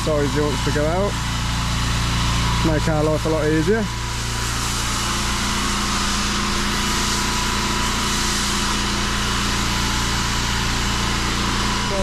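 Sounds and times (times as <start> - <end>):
pressure washer engine running: 0.0 - 12.0
water jet hissing on paving: 3.3 - 12.0.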